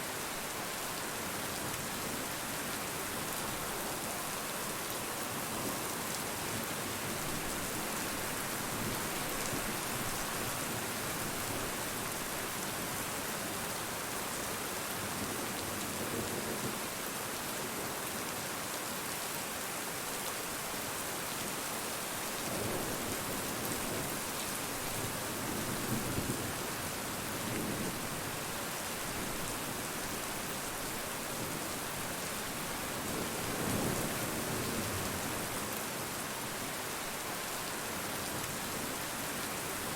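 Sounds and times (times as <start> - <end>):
rain pattering on surfaces: 19.9 - 39.9.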